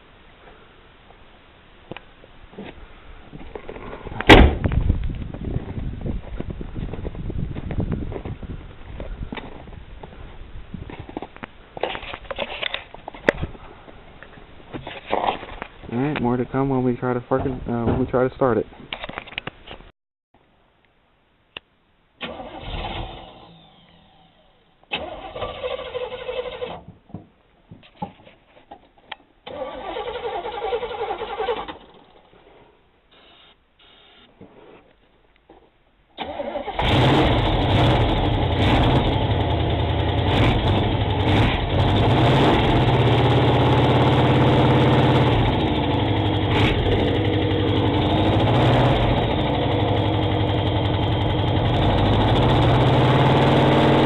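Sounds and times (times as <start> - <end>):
car engine cranking: 22.2 - 24.0, 24.9 - 26.8, 29.4 - 32.1, 36.2 - 54.0
car engine running loud: 36.8 - 54.0.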